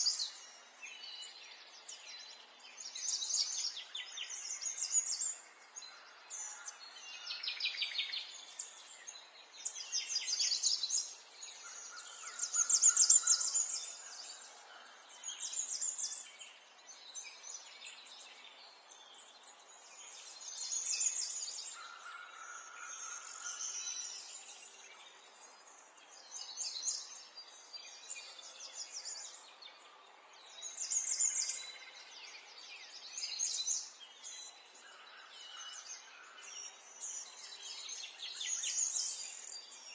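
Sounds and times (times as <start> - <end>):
faint background hiss: 0.0 - 39.9
songbirds trilling: 2.8 - 29.9.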